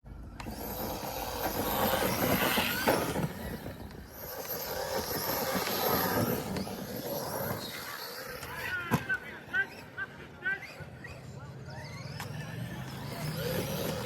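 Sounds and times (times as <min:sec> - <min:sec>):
tyres on the ground: 0:00.1 - 0:11.2
electric motor whining: 0:00.2 - 0:09.4, 0:11.8 - 0:14.0.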